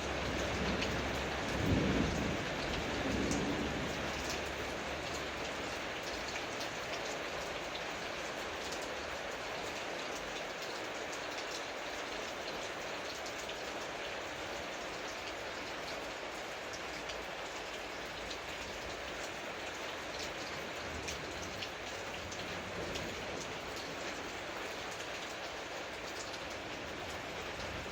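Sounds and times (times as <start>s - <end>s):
close raindrop hits: 0.0s - 7.2s
steady rain falling: 0.0s - 27.9s.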